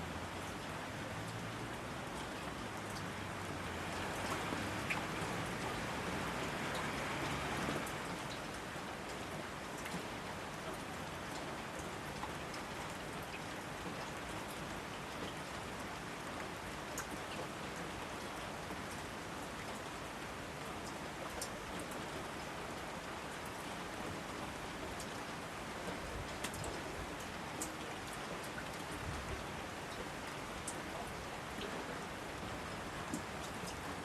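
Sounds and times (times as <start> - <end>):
steady rain hiss: 0.0 - 34.0
single raindrops ticking: 26.4 - 27.8.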